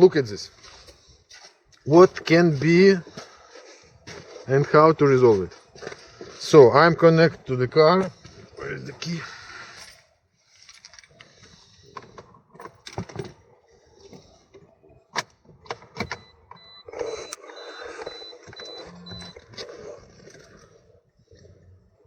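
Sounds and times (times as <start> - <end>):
short high-pitched beeps: 16.2 - 19.4.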